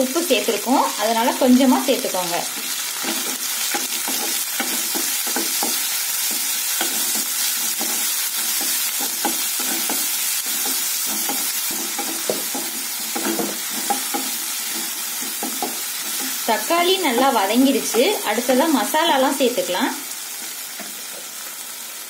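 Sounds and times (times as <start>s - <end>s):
vegetables sizzling in hot oil: 0.0s - 22.0s
spatula scraping pan: 2.6s - 18.2s.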